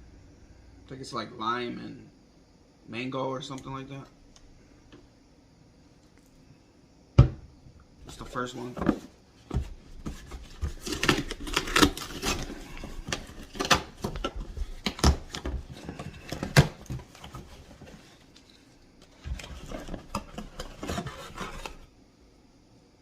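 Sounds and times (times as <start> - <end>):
packaging rustling: 9.9 - 21.9.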